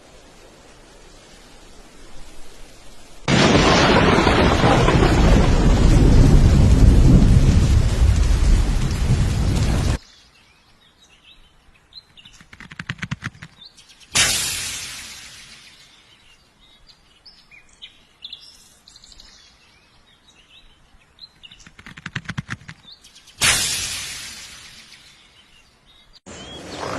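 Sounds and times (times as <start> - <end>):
heavy rain: 0.0 - 10.0
deep rumbling thunder: 3.3 - 10.0
quick run of clicks: 12.2 - 13.6, 21.5 - 22.9.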